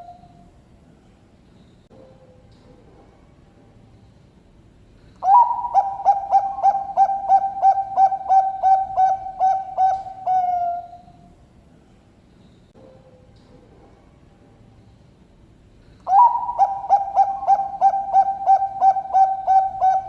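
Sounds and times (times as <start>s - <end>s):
dove cooing: 5.2s - 11.2s, 16.0s - 20.0s.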